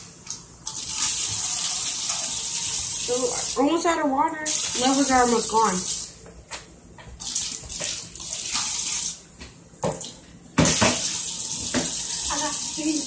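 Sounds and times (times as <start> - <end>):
cup being rinsed and filled: 0.7 - 3.6, 4.5 - 6.2, 7.2 - 9.2, 9.9 - 13.0
tap water running into sink: 0.7 - 6.2, 7.2 - 9.2, 9.8 - 13.0.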